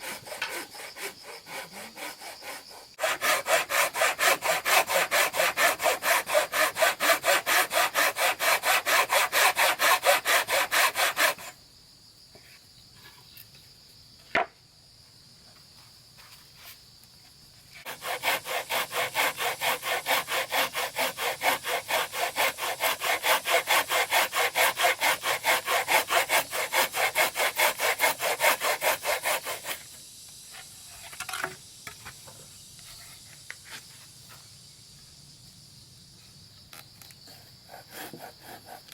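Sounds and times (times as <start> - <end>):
hand saw cutting wood: 0.0 - 11.5, 17.8 - 29.9, 37.3 - 38.9.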